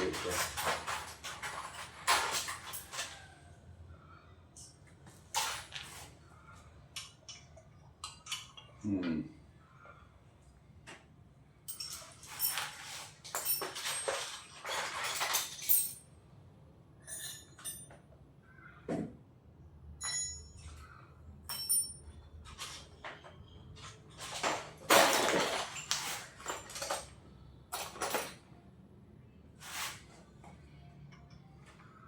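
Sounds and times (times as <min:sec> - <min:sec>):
metal tools clinking and rattling: 0:00.0 - 0:03.2, 0:07.0 - 0:08.8, 0:11.6 - 0:16.1, 0:17.0 - 0:18.0, 0:21.4 - 0:28.4.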